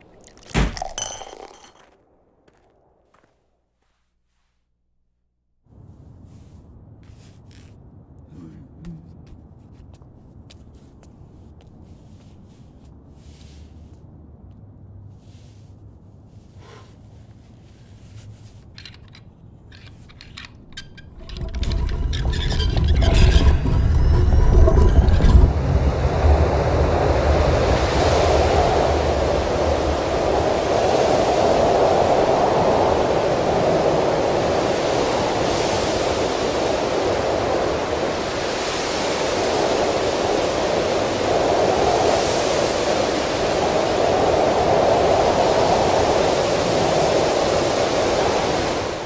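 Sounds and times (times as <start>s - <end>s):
low rumble: 20.8s - 30.4s
wind rushing: 21.0s - 49.0s.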